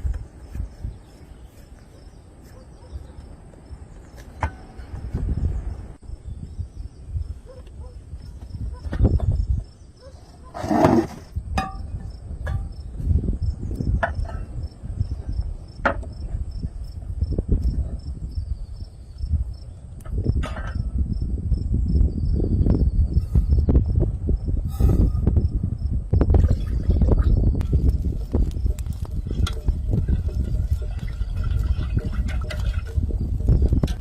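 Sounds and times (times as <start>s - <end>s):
insects chirping: 12.0s - 20.4s, 27.0s - 34.0s
low rumbling: 19.3s - 34.0s.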